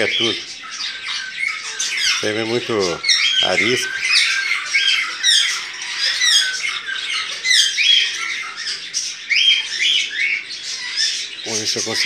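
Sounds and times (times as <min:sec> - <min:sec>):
songbirds chirping and squawking: 0:00.0 - 0:12.0.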